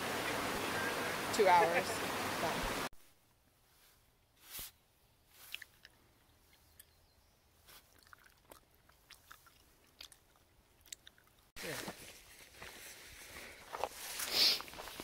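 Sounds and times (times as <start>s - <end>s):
person chewing gummy candy: 7.8s - 11.5s.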